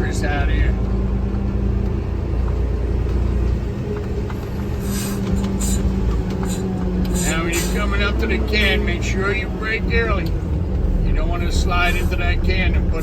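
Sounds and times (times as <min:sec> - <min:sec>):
diesel truck engine running: 0:00.0 - 0:13.0
short air hisses: 0:04.8 - 0:07.8.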